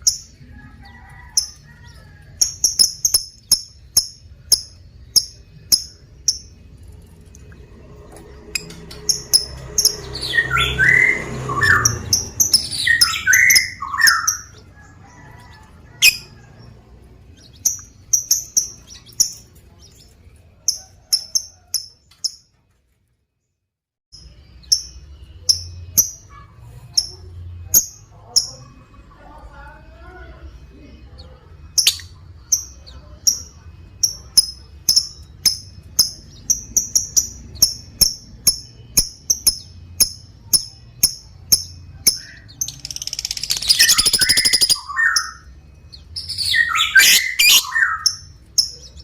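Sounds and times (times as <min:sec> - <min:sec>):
high sharp bird chirps: 0:08.6 - 0:15.0, 0:31.8 - 0:49.0.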